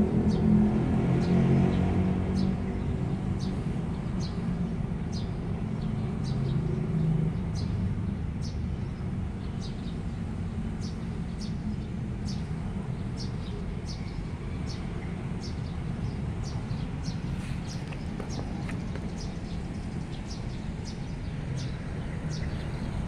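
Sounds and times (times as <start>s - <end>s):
small bird chirping: 16.4s - 22.8s.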